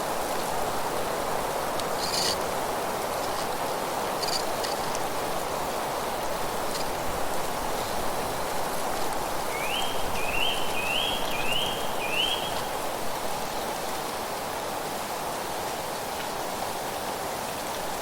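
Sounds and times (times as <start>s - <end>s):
wind through rustling leaves: 0.0s - 18.0s
bird singing: 9.5s - 12.7s.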